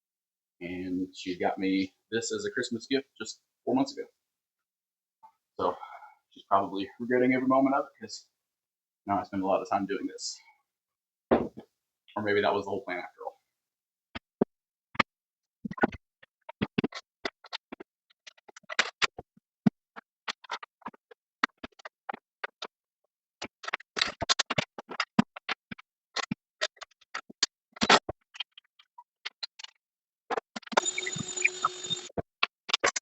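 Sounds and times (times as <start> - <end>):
power tool whirring: 30.8 - 32.1.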